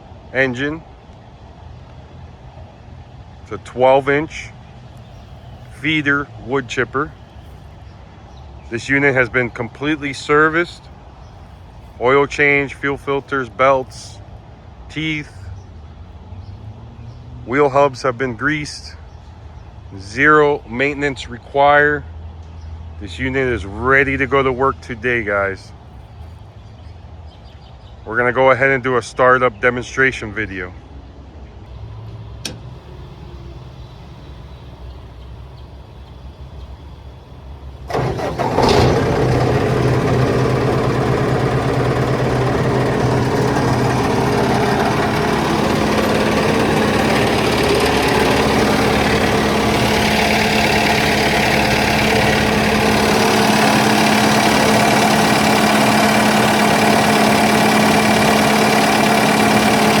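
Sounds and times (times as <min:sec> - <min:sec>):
click: 0:32.4 - 0:32.6
diesel wood chipper running: 0:37.8 - 1:00.0.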